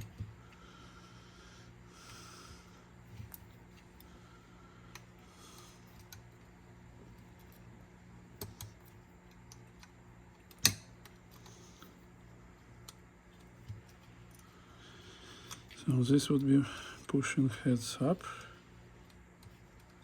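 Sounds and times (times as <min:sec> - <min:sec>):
faint hum: 0:00.0 - 0:20.0
small parts clicking and tapping: 0:08.4 - 0:11.9.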